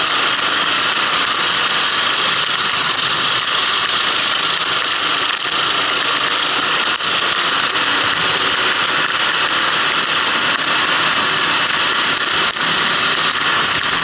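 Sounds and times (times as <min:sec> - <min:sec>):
kart engine running: 0:00.0 - 0:14.0.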